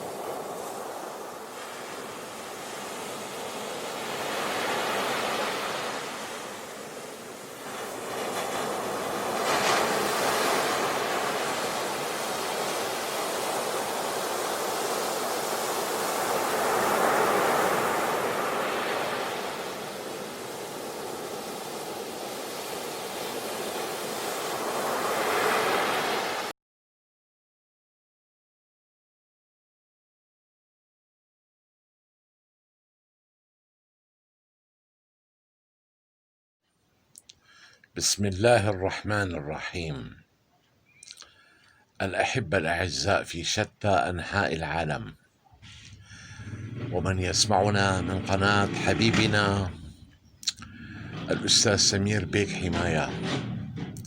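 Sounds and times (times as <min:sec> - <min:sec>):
steady rushing noise: 0:45.6 - 0:54.0.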